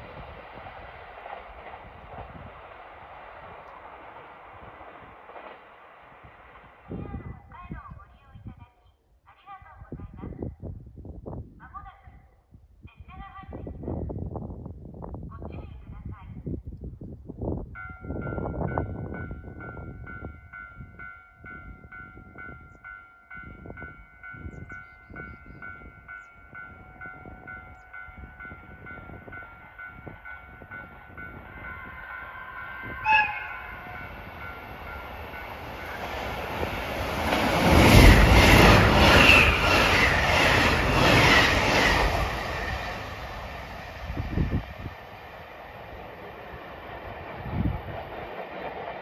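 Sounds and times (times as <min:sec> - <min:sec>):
level-crossing warning bell: 0:17.8 - 0:37.2
train horn blast: 0:31.7 - 0:34.7.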